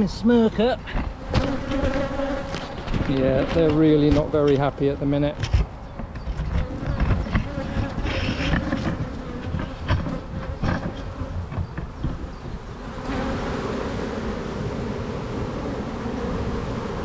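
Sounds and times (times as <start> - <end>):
honey bees buzzing: 0.0 - 17.0
knocks and rustles: 5.3 - 12.6.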